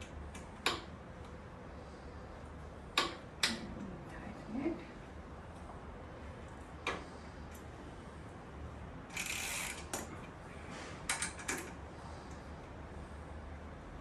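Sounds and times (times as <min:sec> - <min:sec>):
ratchet wrench clicking: 0:09.1 - 0:10.1.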